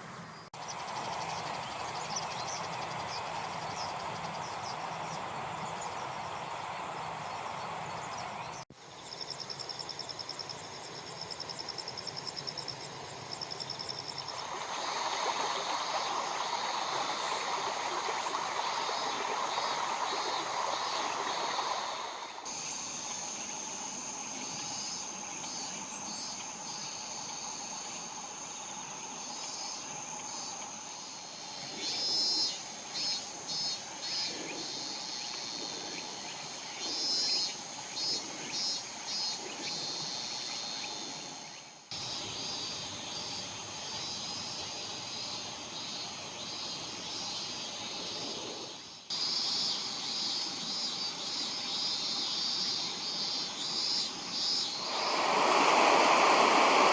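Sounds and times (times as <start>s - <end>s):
insects chirping and trilling: 0.0s - 56.9s
steady rushing noise: 54.6s - 56.9s.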